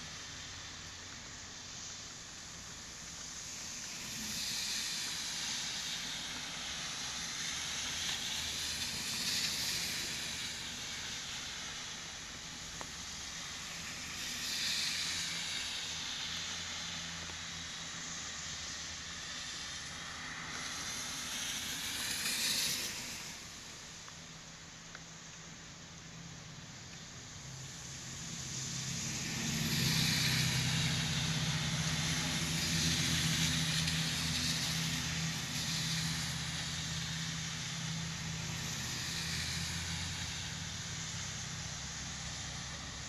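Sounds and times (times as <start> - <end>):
rain falling: 26.6 - 43.0.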